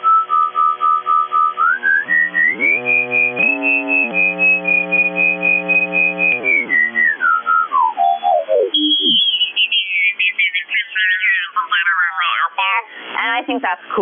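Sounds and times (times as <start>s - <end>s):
radio receiver whistle: 0.0s - 9.7s
talk radio speech: 9.0s - 13.8s.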